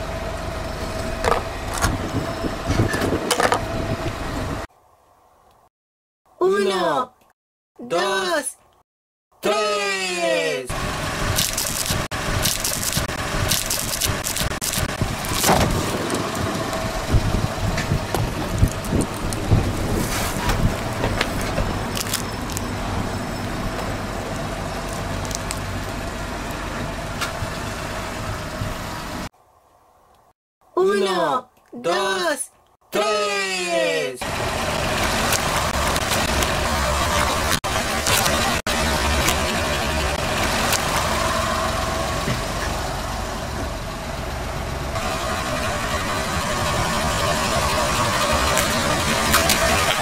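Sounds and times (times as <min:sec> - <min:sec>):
car engine idling: 0:10.7 - 0:20.0, 0:20.6 - 0:29.3, 0:34.2 - 0:50.0.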